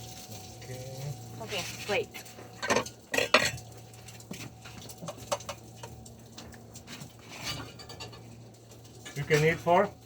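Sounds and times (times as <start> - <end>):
dishes and cutlery clattering: 2.5 - 9.8.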